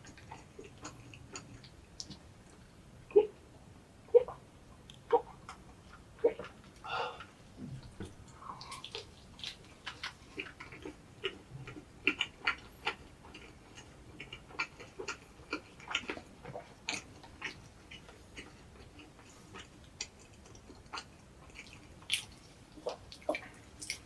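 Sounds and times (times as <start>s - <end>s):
person chewing with mouth clicks: 0.0s - 2.6s, 8.2s - 24.0s.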